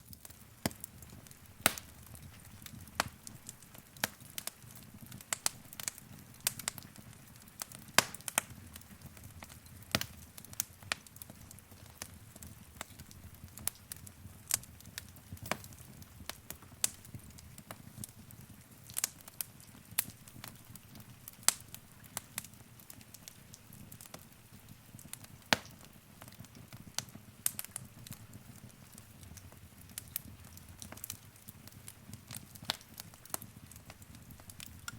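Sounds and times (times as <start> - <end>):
low rumble of flames: 0.0 - 34.9
wood fire crackling and popping: 0.0 - 34.9.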